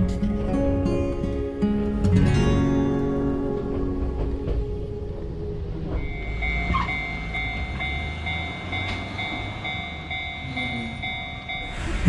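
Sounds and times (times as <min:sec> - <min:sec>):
electric train rumble: 0:00.0 - 0:12.0
pulsing high ringing tone: 0:05.9 - 0:12.0.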